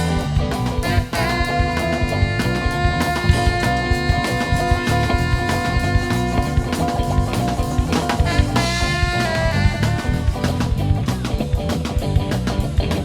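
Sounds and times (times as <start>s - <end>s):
drums and bass beat: 0.0s - 13.0s
guitar: 0.0s - 13.0s
long held notes: 0.8s - 10.6s.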